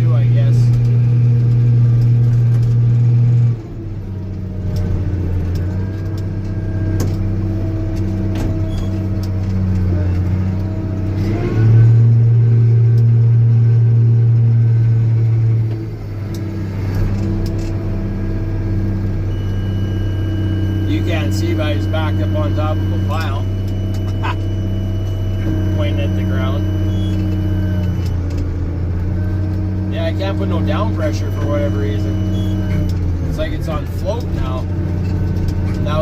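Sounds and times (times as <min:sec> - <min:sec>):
tractor diesel engine running: 0:00.0 - 0:36.0.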